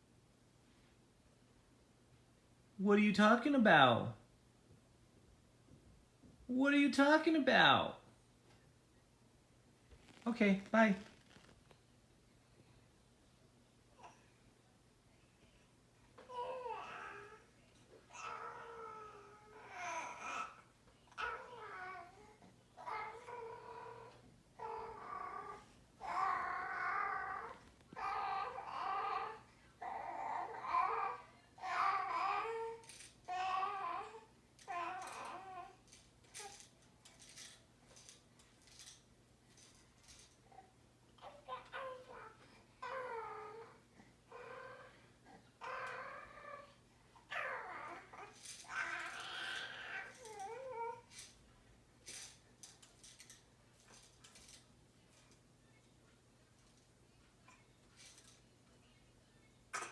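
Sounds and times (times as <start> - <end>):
baby babbling and fussing: 14.0 - 14.4, 15.5 - 35.8, 40.4 - 51.1.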